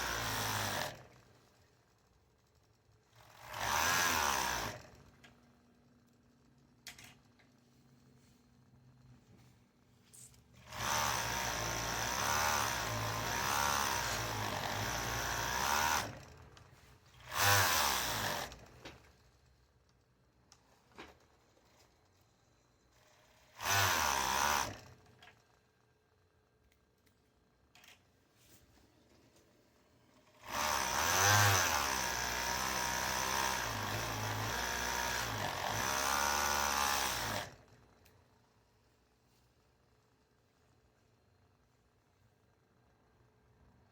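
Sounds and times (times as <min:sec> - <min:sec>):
small motor running: 0:03.1 - 0:05.1, 0:10.6 - 0:19.4, 0:22.9 - 0:25.9, 0:30.2 - 0:38.0.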